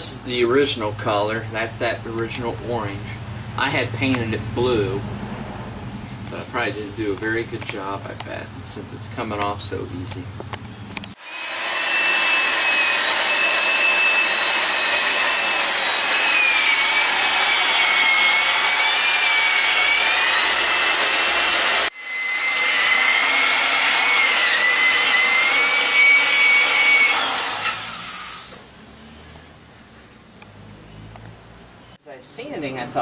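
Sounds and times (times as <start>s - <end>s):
power sander whining: 10.1s - 28.6s.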